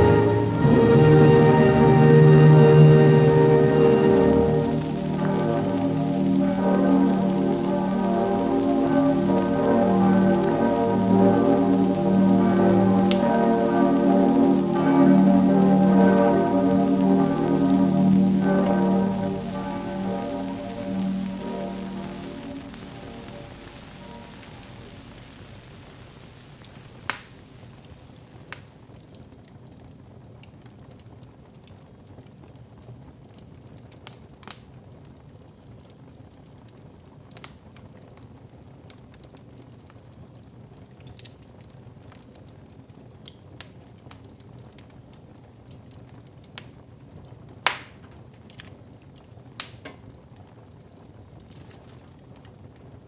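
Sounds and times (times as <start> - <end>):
wood fire crackling: 0.0 - 29.2, 33.3 - 34.9, 45.9 - 53.0.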